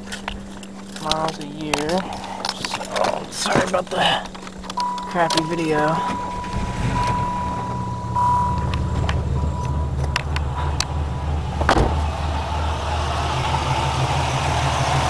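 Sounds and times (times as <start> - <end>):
car engine idling: 0.0 - 15.0
faint high-pitched tone: 4.8 - 10.9
thump: 11.6 - 12.0.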